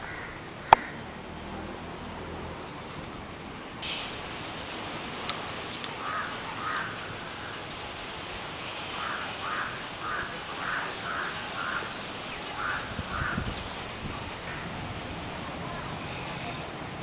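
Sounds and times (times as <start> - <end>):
outdoor background hiss: 0.0 - 17.0
bird calling: 6.0 - 7.6, 9.0 - 14.8.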